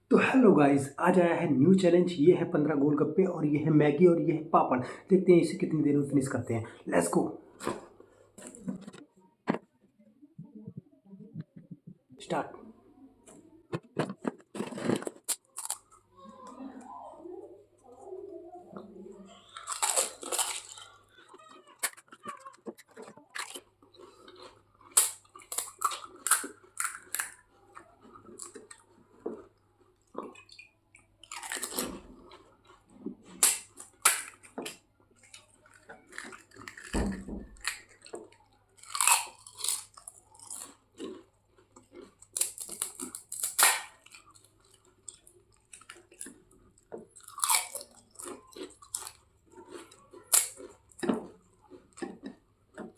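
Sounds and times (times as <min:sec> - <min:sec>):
crisp shells crunching while chewing: 0:14.2 - 0:16.1, 0:19.3 - 0:52.9.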